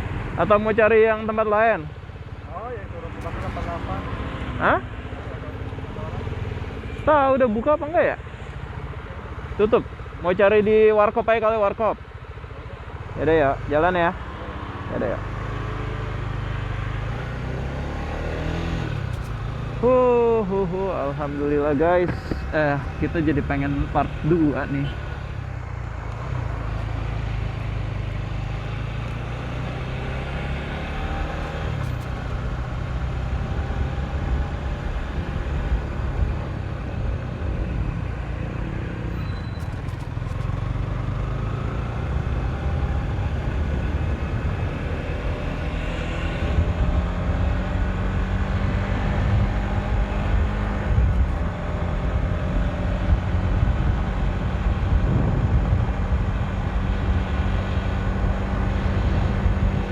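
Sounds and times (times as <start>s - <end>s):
motorcycle engine running: 0.0s - 45.6s
wind rumble on microphone: 50.4s - 51.5s, 52.9s - 59.9s.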